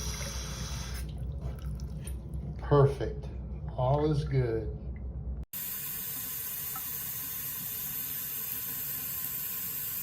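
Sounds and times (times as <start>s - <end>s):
faucet water splashing into sink: 5.6s - 10.0s.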